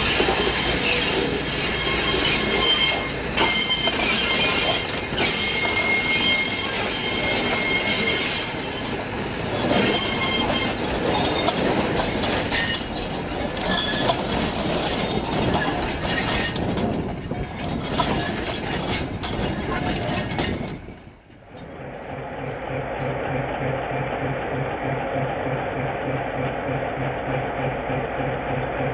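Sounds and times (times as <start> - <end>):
steel wheels squealing: 0.0 - 21.8
rail vehicle rumbling clatter: 0.0 - 28.9.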